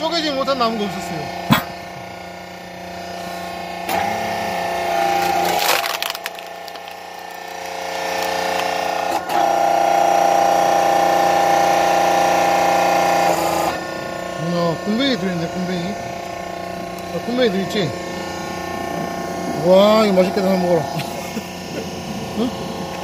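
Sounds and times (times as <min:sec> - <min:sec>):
hydraulic log splitter humming: 0:00.0 - 0:23.0
wood crackling and splintering: 0:05.0 - 0:09.0.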